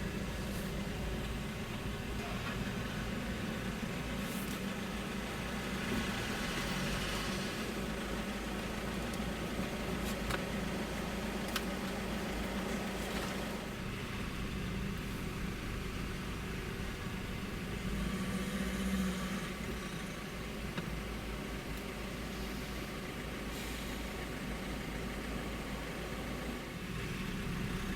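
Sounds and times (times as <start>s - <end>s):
car engine humming: 0.0s - 27.9s
road noise: 0.0s - 27.9s.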